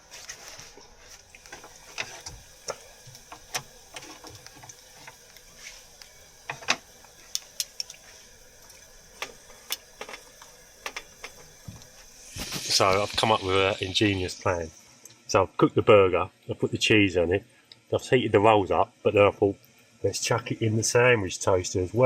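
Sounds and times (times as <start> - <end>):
faint steady hiss: 0.0 - 22.0
cooking gear clinking: 1.3 - 8.1, 9.1 - 11.6.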